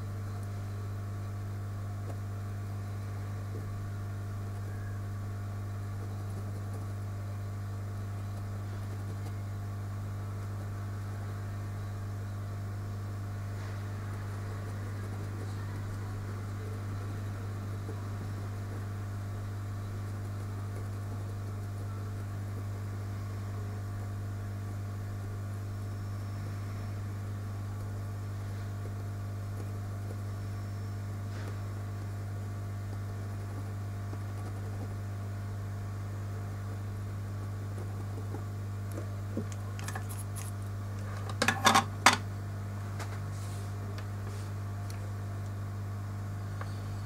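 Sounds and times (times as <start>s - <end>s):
low equipment hum: 0.0s - 47.0s
small tools clicking and tapping: 39.5s - 40.6s.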